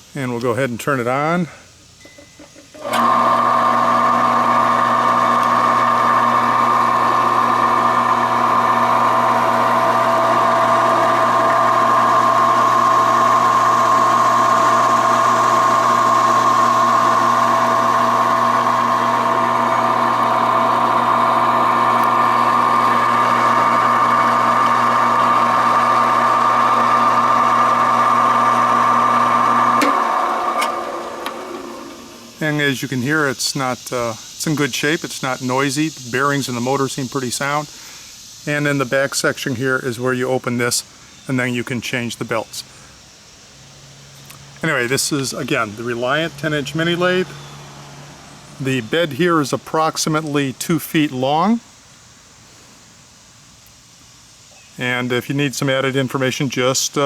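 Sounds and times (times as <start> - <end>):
lathe motor hum and whine: 2.8 - 32.5.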